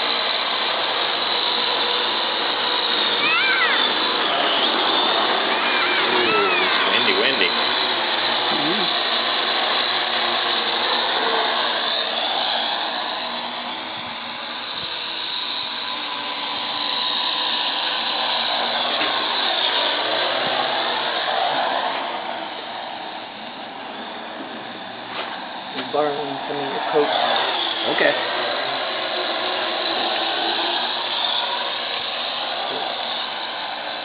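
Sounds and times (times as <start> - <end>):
model airplane motor whining: 0.0 - 34.0.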